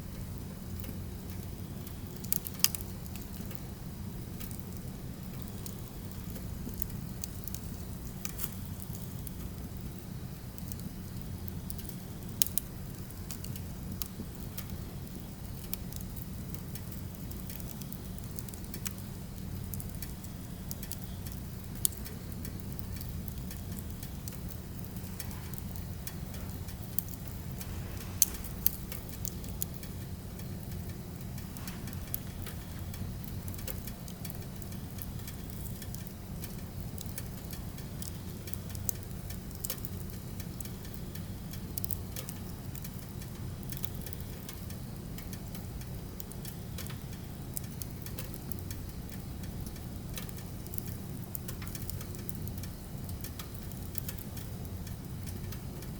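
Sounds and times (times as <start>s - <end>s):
firewood crackling and popping: 0.0s - 55.9s
low rumble: 24.1s - 29.8s.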